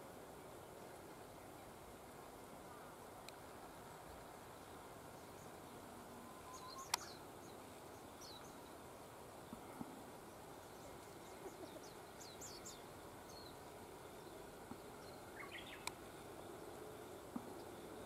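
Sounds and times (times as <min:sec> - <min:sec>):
small birds chirping: 0:02.7 - 0:18.0
sharp click: 0:06.9 - 0:07.1.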